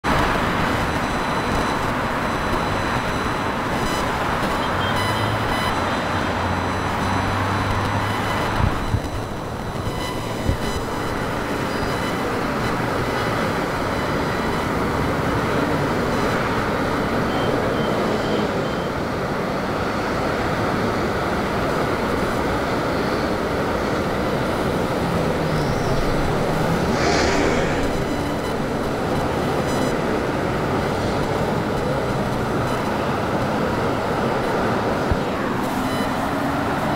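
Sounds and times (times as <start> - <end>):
airplane flying low overhead: 25.3 - 29.1.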